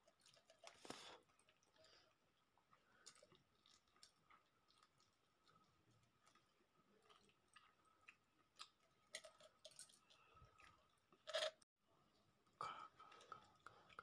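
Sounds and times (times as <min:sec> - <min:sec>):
person chewing with wet clicks: 0:00.0 - 0:10.9.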